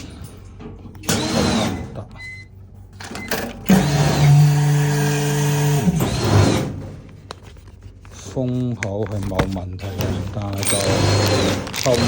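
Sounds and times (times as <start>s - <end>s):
vacuum pump motor humming: 9.8s - 12.0s.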